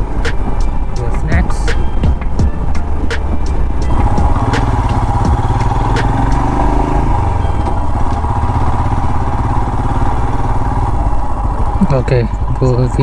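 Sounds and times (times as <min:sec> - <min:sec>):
motorcycle engine running: 0:00.0 - 0:12.8
sharp clicks: 0:03.1 - 0:06.7.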